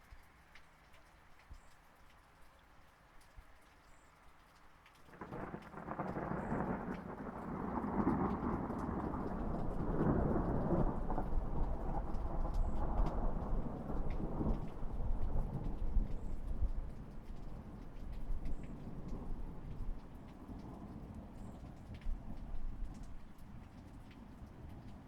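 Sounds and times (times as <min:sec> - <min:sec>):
light rain pattering: 0:00.0 - 0:25.0
thunder rumbling: 0:05.2 - 0:23.7.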